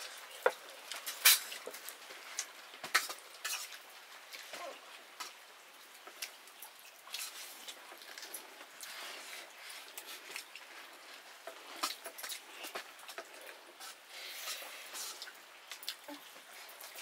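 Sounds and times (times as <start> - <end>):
person chewing food: 6.0 - 17.0.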